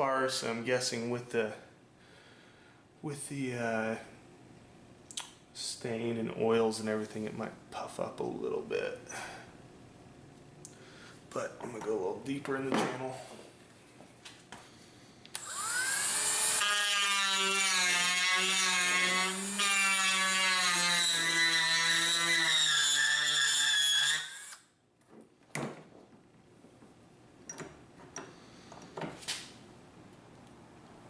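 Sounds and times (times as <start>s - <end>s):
rotary tool grinding wood: 15.4s - 24.6s.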